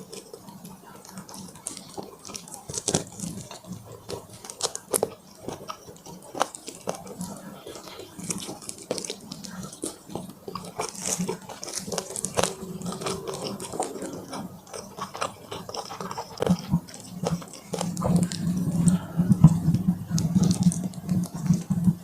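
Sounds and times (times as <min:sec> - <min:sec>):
chewing crunchy food: 0:00.0 - 0:22.0
wet mouth sounds: 0:04.4 - 0:22.0.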